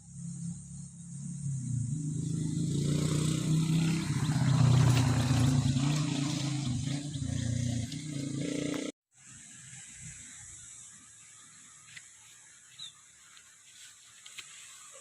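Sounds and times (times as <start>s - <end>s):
engine low hum: 0.0s - 8.9s.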